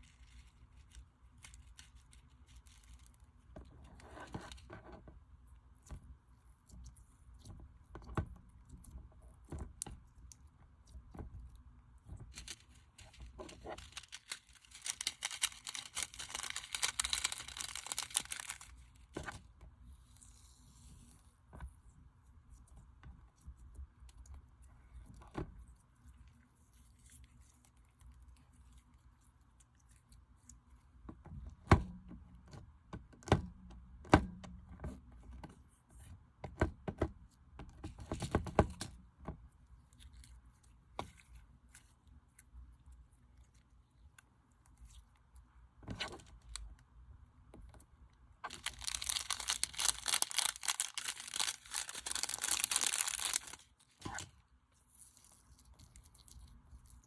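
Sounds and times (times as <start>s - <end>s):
slime dense crackling: 13.8s - 18.8s, 48.5s - 53.6s.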